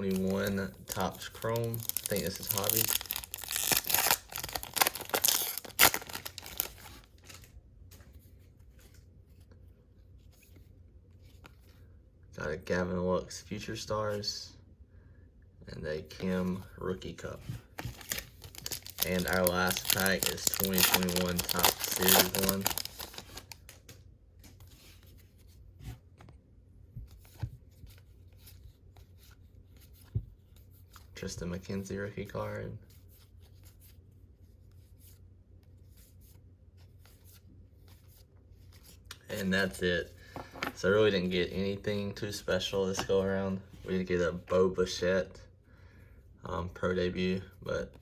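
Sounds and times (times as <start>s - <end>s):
trading cards rustling and clicking: 0.0s - 9.5s, 17.5s - 25.5s, 37.1s - 44.5s
wrapper tearing and crinkling: 0.1s - 7.5s, 17.8s - 23.8s.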